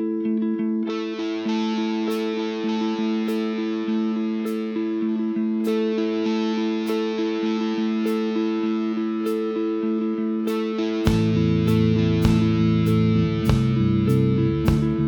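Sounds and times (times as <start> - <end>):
distorted electric guitar chords: 0.0 - 15.0
steady beat: 11.1 - 12.6, 13.4 - 13.8, 14.7 - 15.0.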